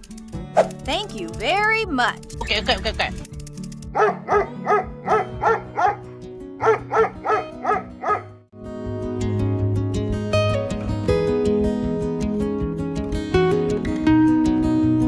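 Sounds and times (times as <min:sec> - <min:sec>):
strummed guitar music: 0:00.0 - 0:15.0
dog barking in high yelps: 0:04.0 - 0:08.3.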